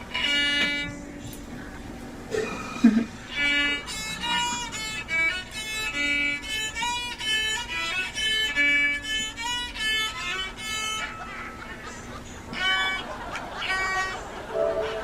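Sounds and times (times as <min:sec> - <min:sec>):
violin melody: 0:00.0 - 0:01.0, 0:03.3 - 0:11.0, 0:14.5 - 0:15.0.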